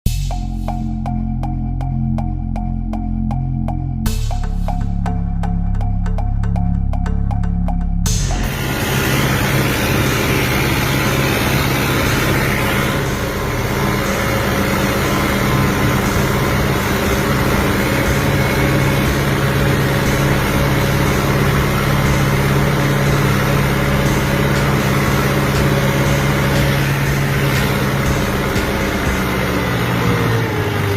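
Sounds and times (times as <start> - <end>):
tractor diesel engine running: 4.3 - 30.9.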